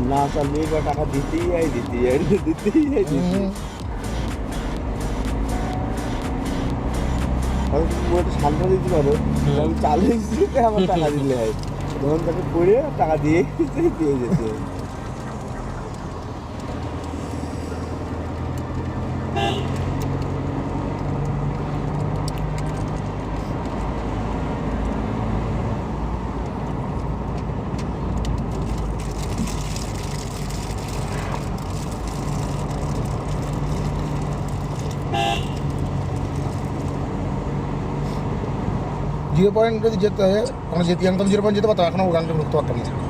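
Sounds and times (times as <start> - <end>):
car engine: 0.0 - 43.0
road noise inside car: 0.0 - 43.0
car horn toot: 19.3 - 19.8, 35.1 - 35.6.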